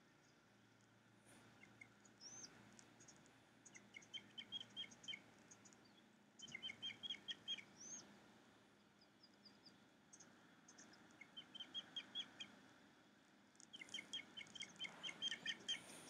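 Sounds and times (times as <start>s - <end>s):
faint outdoor hiss: 0.0s - 16.0s
quick bird chirps: 1.3s - 8.1s, 13.6s - 16.0s
whistled bird notes: 1.6s - 2.5s, 3.7s - 5.2s, 5.8s - 8.1s, 9.3s - 12.5s, 13.7s - 16.0s.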